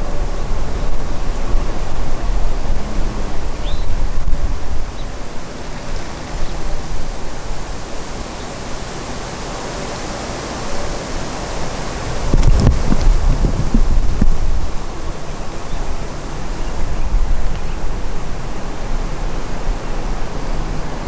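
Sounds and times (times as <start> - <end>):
wind buffeting microphone: 0.0 - 8.2, 11.2 - 21.0
wind rushing through trees: 0.0 - 21.0.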